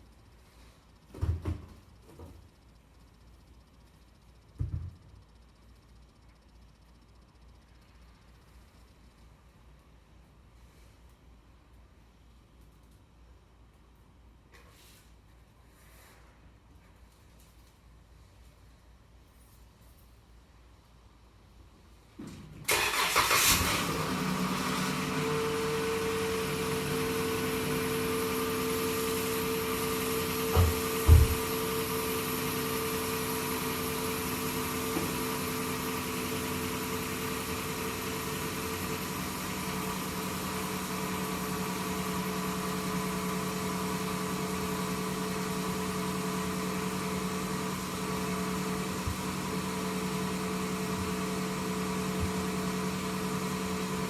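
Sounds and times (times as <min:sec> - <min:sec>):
car engine starting and idling: 0:22.6 - 0:54.0.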